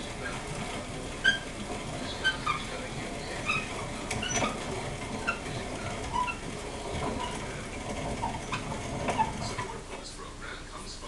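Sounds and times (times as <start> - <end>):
grain grinder grinding: 0.0 - 10.0
short high squeaks: 1.2 - 9.8.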